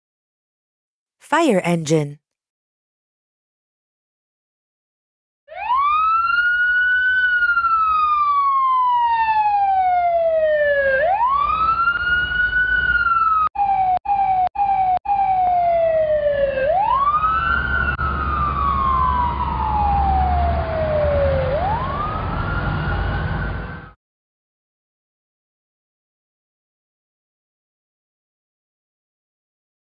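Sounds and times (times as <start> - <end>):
fire engine siren wailing: 5.5 - 23.9.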